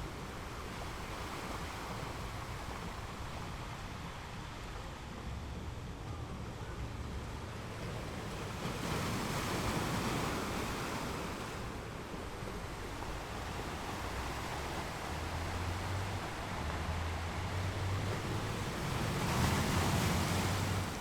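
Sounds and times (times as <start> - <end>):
waves breaking on rocks: 7.8 - 21.0.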